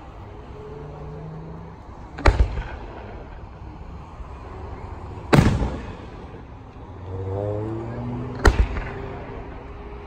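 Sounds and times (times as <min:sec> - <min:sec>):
fireworks booms: 0:02.2 - 0:03.3, 0:05.3 - 0:06.4, 0:08.4 - 0:09.2.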